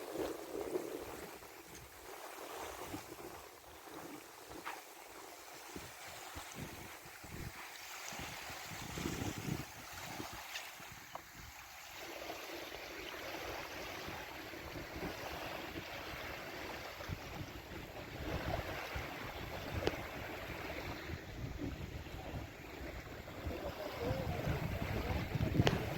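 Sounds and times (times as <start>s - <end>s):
water rushing and splashing: 0.0s - 25.9s
wind noise: 5.6s - 11.6s, 13.5s - 25.9s.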